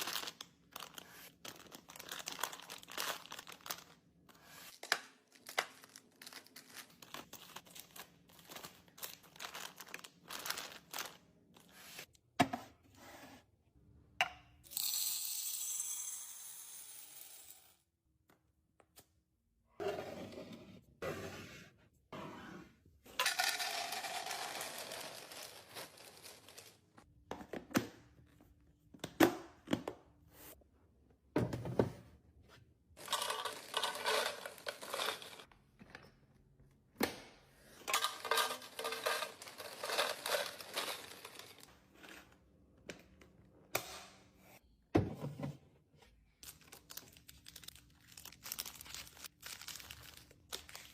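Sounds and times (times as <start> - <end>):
plastic packaging crinkling: 0.0 - 4.0, 46.4 - 50.9.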